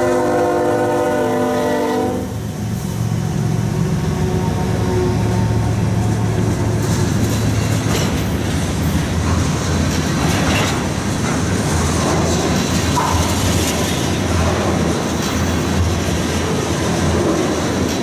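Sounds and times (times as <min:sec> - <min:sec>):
locomotive engine drone: 0:00.0 - 0:18.0
train wheels clattering on rails: 0:05.3 - 0:18.0.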